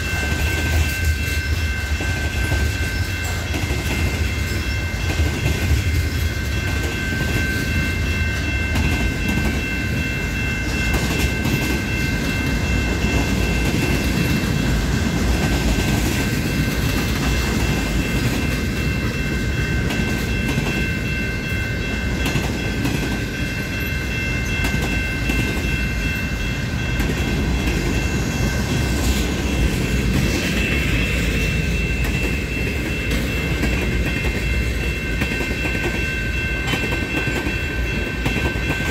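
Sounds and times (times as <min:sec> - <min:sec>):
freight train wheels rumbling on rails: 0:00.0 - 0:38.9.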